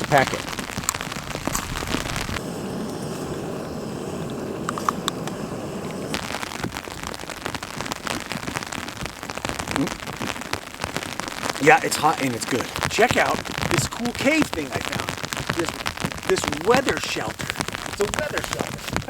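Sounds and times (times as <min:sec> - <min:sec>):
rain drops pattering: 0:00.0 - 0:19.0
dull steady rush: 0:01.6 - 0:06.6.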